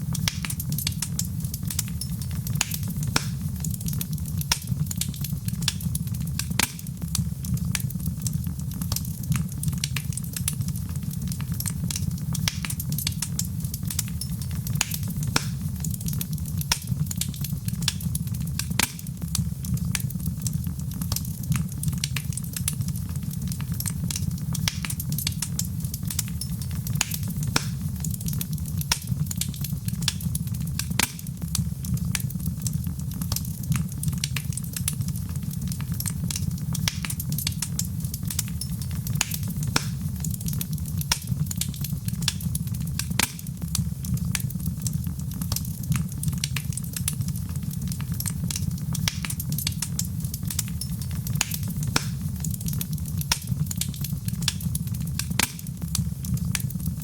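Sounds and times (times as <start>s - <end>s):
fireplace fire crackling: 0.0s - 57.0s
low rumble of flames: 0.0s - 57.0s
sharp pops: 0.1s - 8.4s, 13.8s - 21.4s, 24.6s - 31.6s, 36.0s - 43.8s, 48.2s - 55.9s.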